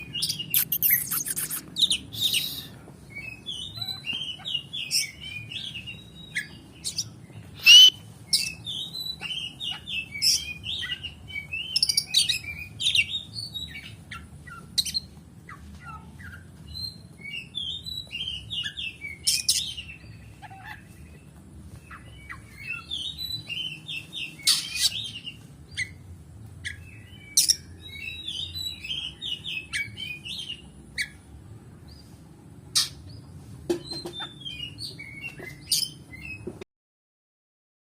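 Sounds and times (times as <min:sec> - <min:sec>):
bird singing chirps and whistles: 0:00.0 - 0:15.1.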